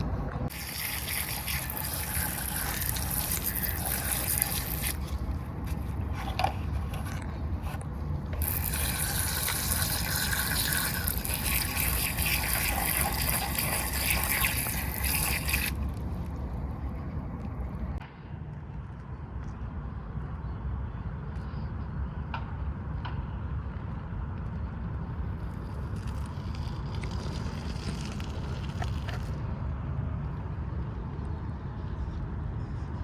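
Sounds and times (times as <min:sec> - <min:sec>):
water dripping and running: 0:00.5 - 0:05.9, 0:08.4 - 0:16.0
water spraying with hiss: 0:00.5 - 0:05.9, 0:08.4 - 0:15.9.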